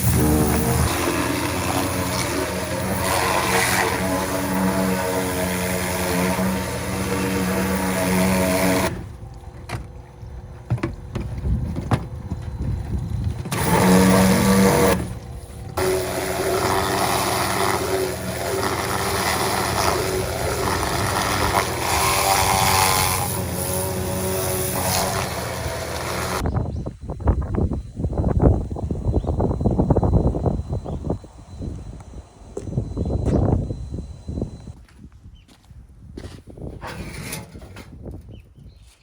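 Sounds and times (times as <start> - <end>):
small car engine running: 0.0 - 26.4.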